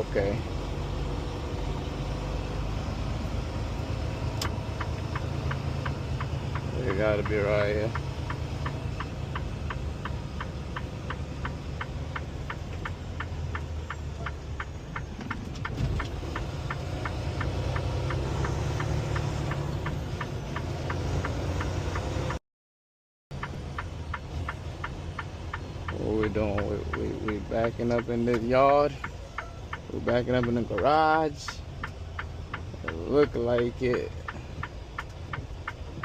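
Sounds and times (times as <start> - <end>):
diesel engine hum: 0.0 - 22.4, 23.3 - 36.0
turn signal clicker ticking: 3.2 - 22.4, 23.3 - 36.0.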